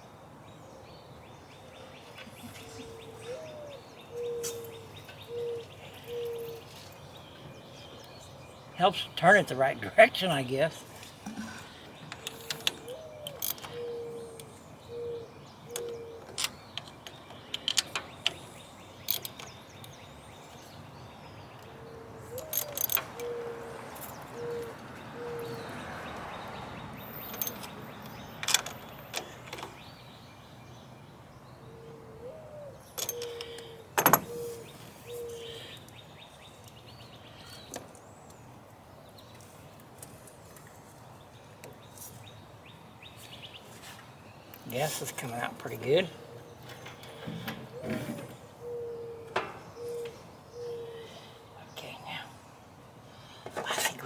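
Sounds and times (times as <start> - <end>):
dove cooing: 2.6 - 6.7, 12.7 - 16.4, 21.8 - 26.0, 31.7 - 35.8, 46.2 - 51.5.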